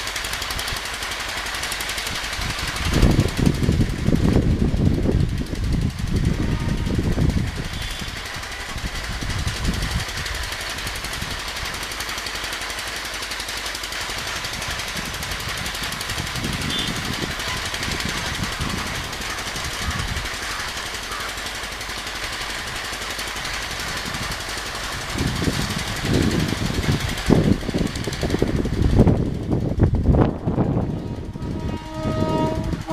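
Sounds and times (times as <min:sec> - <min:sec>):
train rolling past: 0:00.0 - 0:32.9.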